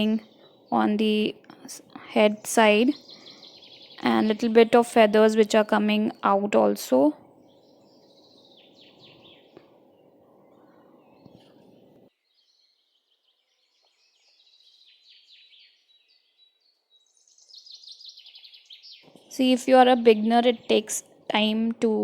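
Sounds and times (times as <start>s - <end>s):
low steady hum: 0.0s - 12.1s
faint birds chirping: 0.0s - 22.0s.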